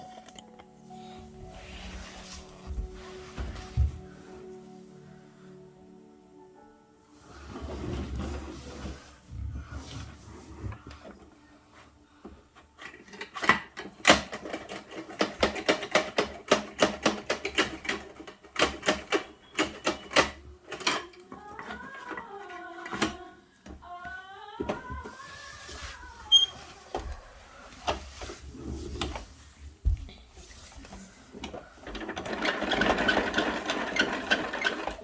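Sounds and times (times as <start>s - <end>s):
plastic toy parts clicking and rattling: 12.8s - 23.2s.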